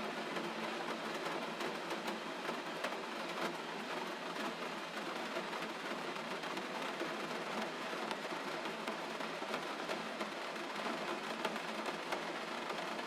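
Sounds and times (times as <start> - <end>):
gentle steady rain: 0.0 - 13.0.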